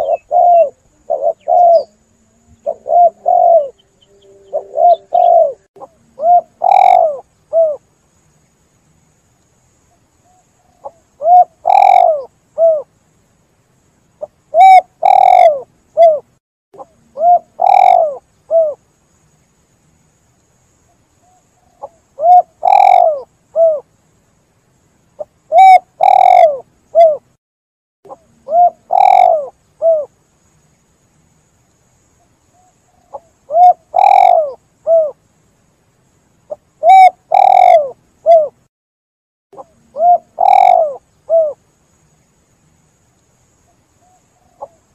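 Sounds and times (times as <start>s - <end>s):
dove cooing: 0.0s - 7.8s, 10.3s - 12.9s, 14.5s - 18.8s, 21.2s - 23.8s, 25.5s - 27.3s, 28.1s - 30.1s, 32.6s - 35.2s, 36.5s - 38.6s, 39.6s - 41.6s, 44.0s - 44.9s.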